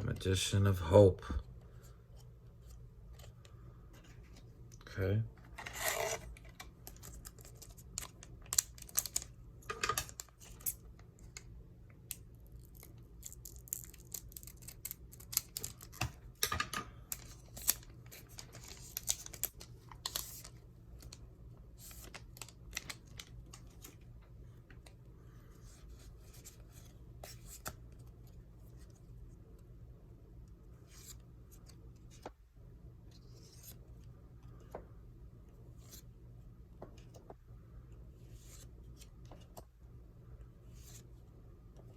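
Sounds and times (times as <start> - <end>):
cards and foil pack crinkling: 5.6 - 10.8, 12.6 - 16.1, 17.1 - 21.2, 21.8 - 24.0.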